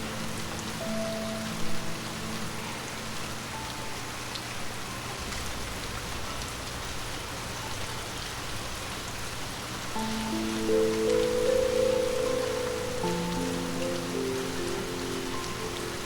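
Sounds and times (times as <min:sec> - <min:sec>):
soft sustained music notes: 0:00.0 - 0:05.8, 0:10.0 - 0:16.0
steady rain: 0:00.0 - 0:16.0.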